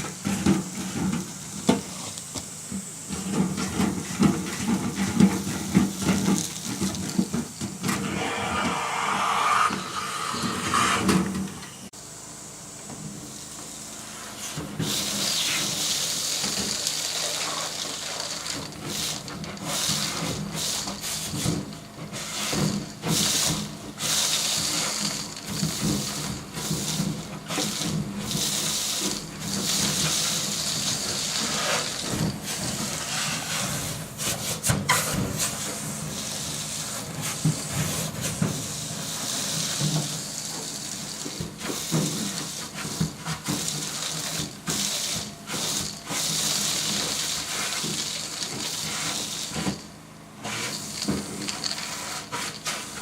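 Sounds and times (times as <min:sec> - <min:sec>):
vacuum air rushing through hose: 0:07.8 - 0:11.9.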